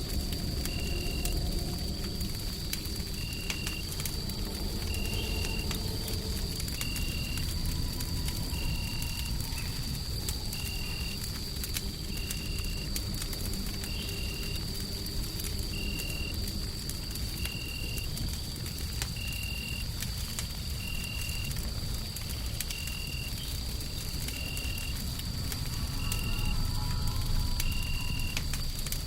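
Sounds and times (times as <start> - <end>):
faint high whine: 0.0 - 12.9, 22.6 - 29.0
deep white-noise rumble: 0.0 - 17.5, 23.3 - 29.0
wood fire crackling and popping: 0.0 - 29.0.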